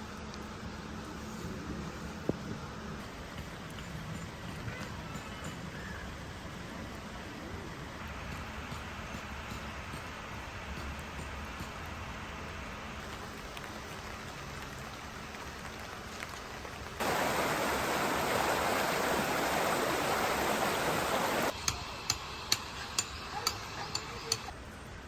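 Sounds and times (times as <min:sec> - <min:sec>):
rain falling: 0:06.1 - 0:21.6.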